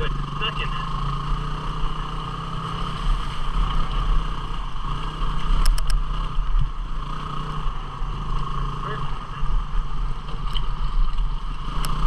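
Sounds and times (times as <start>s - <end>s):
motorcycle engine running: 0.0s - 12.0s
quick clicks: 5.6s - 6.0s.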